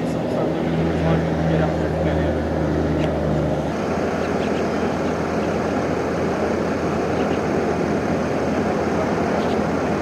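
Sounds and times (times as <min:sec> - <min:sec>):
traffic noise: 0:00.0 - 0:10.0.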